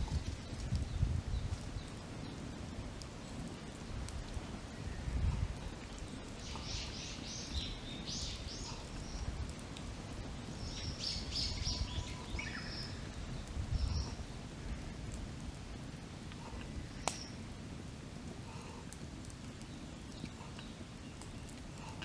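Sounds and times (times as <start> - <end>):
campfire crackling: 0.0 - 22.0
birds singing: 5.6 - 9.6, 10.3 - 14.3.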